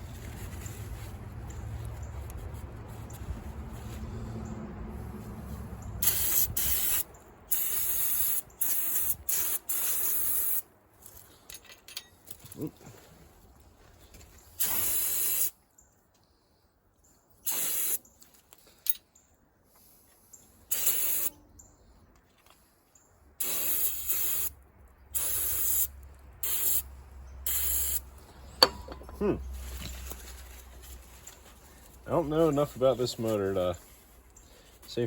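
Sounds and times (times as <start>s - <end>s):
pressurised spray hissing: 6.0s - 10.6s, 14.6s - 15.5s, 17.5s - 18.0s, 20.7s - 21.3s, 23.4s - 24.5s, 25.2s - 26.9s, 27.5s - 28.0s.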